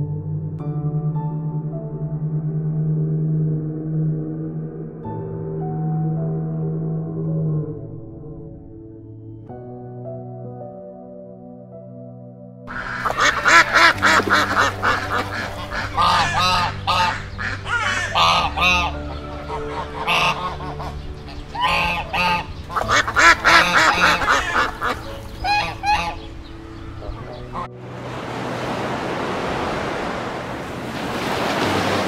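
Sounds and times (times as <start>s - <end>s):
ducks quacking: 12.7s - 27.7s.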